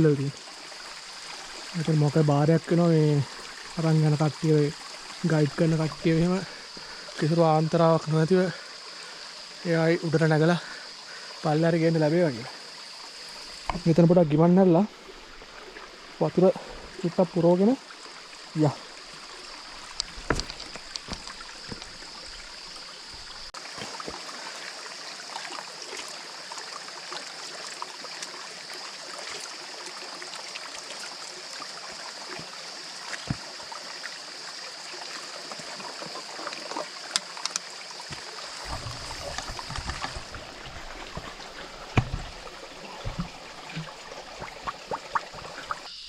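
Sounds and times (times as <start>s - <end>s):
stream trickling over rocks: 0.0s - 46.0s
light knocks and clicks: 20.0s - 21.9s.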